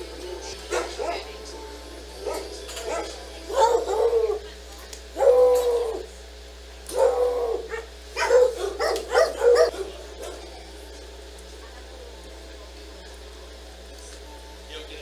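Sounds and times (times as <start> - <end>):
dog barking: 0.7 - 1.4, 2.2 - 4.4, 5.2 - 6.0, 6.9 - 10.5.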